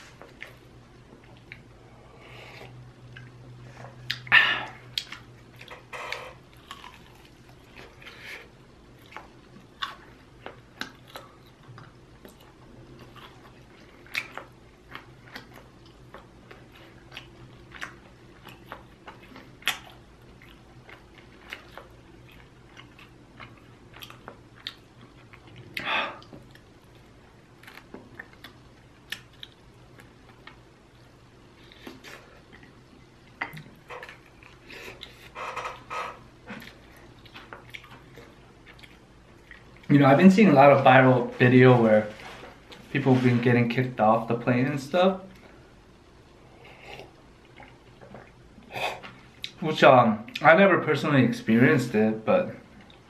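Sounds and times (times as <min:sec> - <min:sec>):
close-miked chewing and biting: 0:06.6 - 0:08.2, 0:09.0 - 0:30.6, 0:36.5 - 0:39.9.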